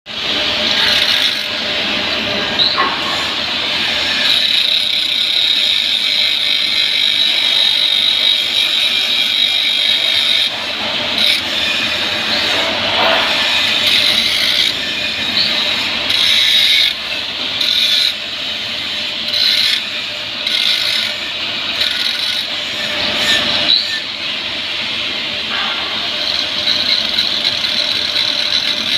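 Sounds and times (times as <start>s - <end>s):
welding arc hissing: 3.2s - 19.9s.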